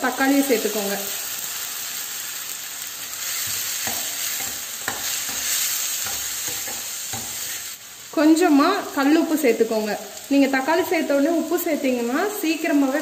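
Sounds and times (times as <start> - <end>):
vegetables sizzling in hot oil: 0.0 - 13.0
spatula scraping a pan: 3.1 - 7.8.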